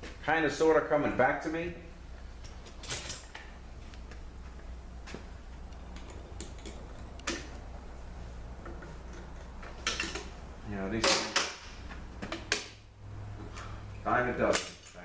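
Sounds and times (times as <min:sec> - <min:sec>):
tools and metal parts clicking: 0:02.4 - 0:03.4, 0:05.9 - 0:07.5, 0:08.6 - 0:10.3, 0:14.5 - 0:15.0.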